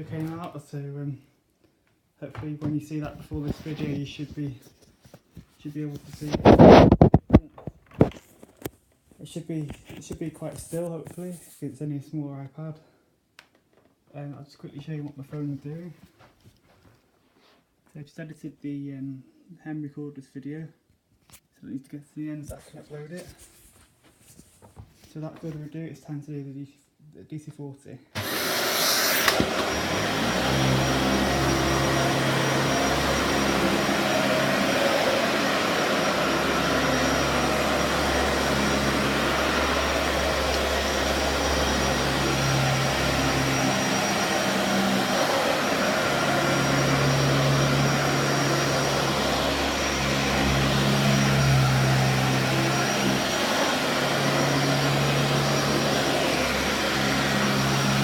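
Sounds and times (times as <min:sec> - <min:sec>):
vacuum cleaner whining: 0:00.0 - 0:00.5, 0:02.4 - 0:04.4, 0:06.2 - 0:07.2, 0:28.2 - 0:58.0.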